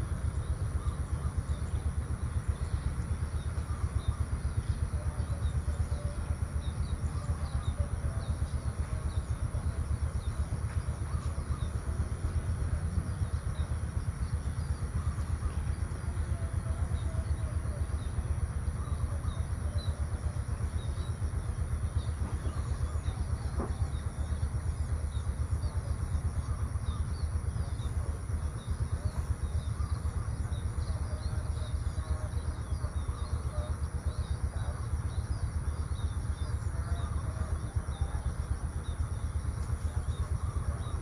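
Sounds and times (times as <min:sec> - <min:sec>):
faint bird chirps: 0:00.0 - 0:41.0.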